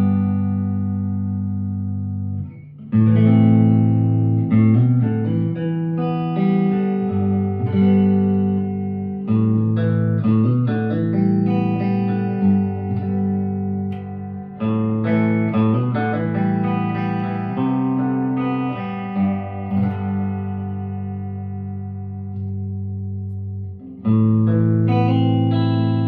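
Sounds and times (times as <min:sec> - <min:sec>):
electric guitar chords and picked notes: 0:00.0 - 0:26.0.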